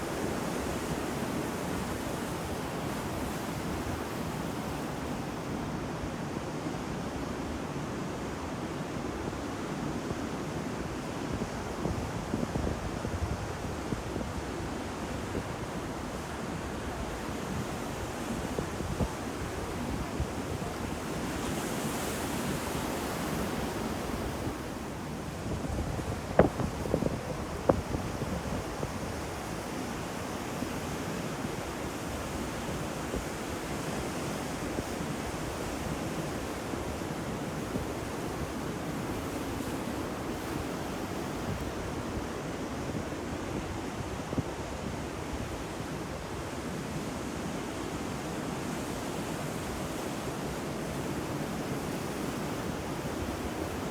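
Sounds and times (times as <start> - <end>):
wind on microphone: 18.3 - 29.6.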